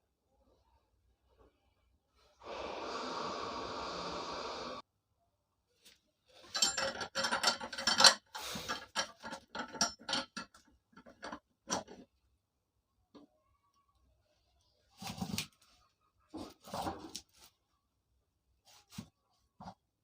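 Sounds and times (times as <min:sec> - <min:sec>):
steady hiss: 0:02.4 - 0:04.8
hand tools clinking on metal: 0:06.5 - 0:11.9.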